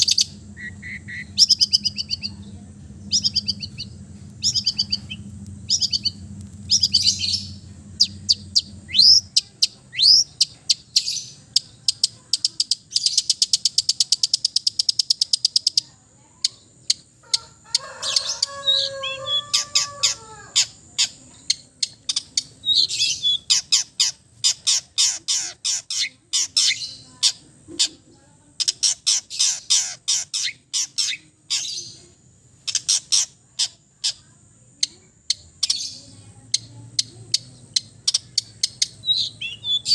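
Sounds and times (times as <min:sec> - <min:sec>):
shrike singing: 0:00.0 - 0:12.0, 0:16.9 - 0:27.4, 0:34.8 - 0:39.9.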